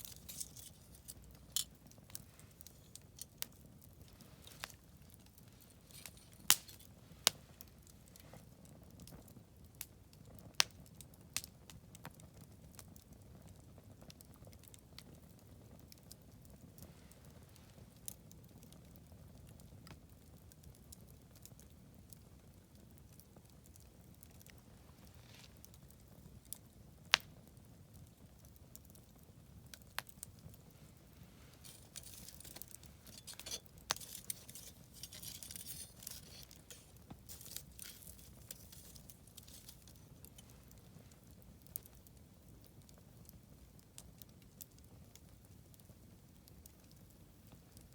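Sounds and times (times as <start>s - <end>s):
fire popping and crackling: 0.0s - 47.9s
wood fire rushing: 30.7s - 40.7s.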